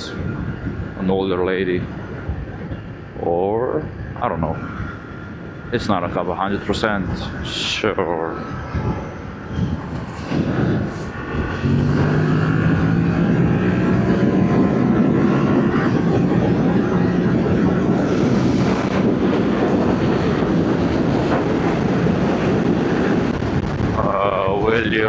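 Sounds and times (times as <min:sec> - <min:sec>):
wind noise: 0:00.0 - 0:25.0
motorcycle engine: 0:10.3 - 0:23.7.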